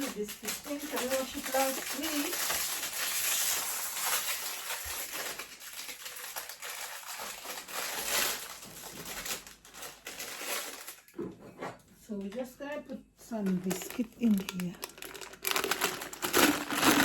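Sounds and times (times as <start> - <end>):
wrapper crinkling and rustling: 0.0 - 11.1, 13.4 - 17.0
small crackles: 0.0 - 11.2, 13.4 - 17.0.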